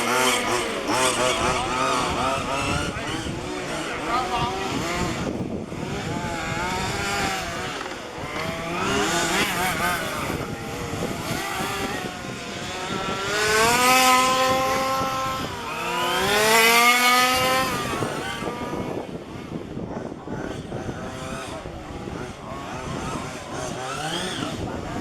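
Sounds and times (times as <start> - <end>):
rc car engines racing: 0.0 - 25.0
rc car passing loudly: 0.0 - 25.0.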